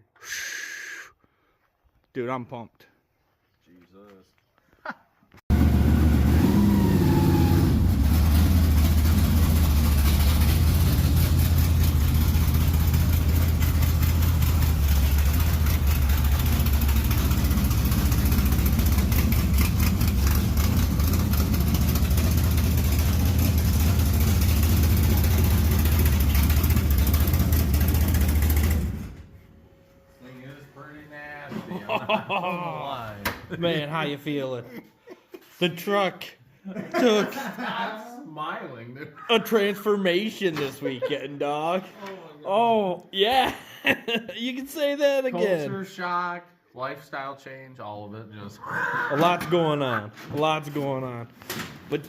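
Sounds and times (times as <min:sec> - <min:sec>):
truck engine idling loudly: 0:05.6 - 0:29.1.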